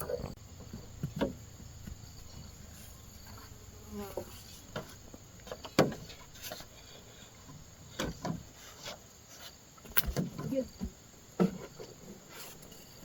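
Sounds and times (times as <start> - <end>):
faint insects: 0.0 - 13.0.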